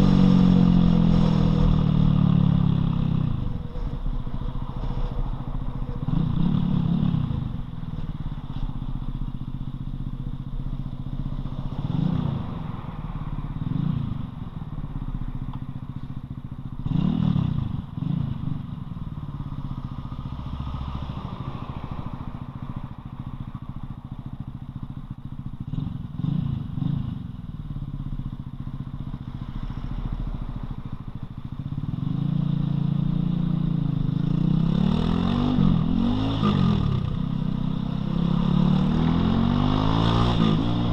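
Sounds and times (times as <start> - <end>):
motorcycle engine revving: 0.0 - 8.3, 16.7 - 18.8, 24.0 - 28.2, 30.9 - 40.9.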